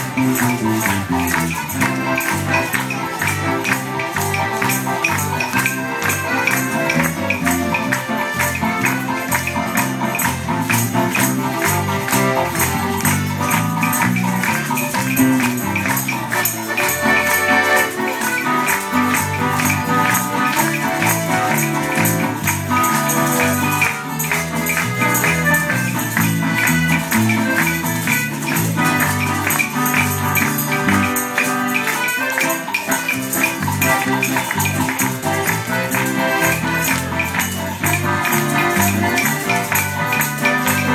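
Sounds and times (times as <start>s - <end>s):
accordion: 0.0s - 40.9s
guitars playing: 0.0s - 40.9s
tambourines and shakers: 0.0s - 40.9s.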